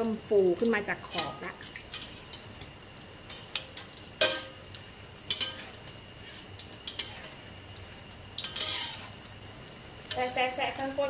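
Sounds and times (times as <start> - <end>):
omelet sizzling in oil: 0.0 - 11.0
metal ladle clinking on wok: 3.5 - 4.6.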